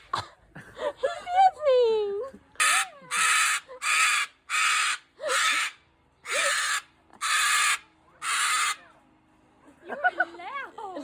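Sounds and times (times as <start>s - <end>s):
parrot squawking: 2.6s - 8.8s.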